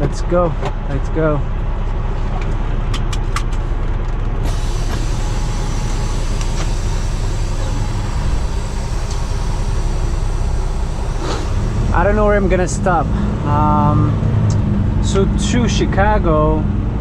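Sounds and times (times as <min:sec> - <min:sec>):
diesel truck engine running: 0:00.0 - 0:17.0
steady hiss: 0:04.5 - 0:11.7.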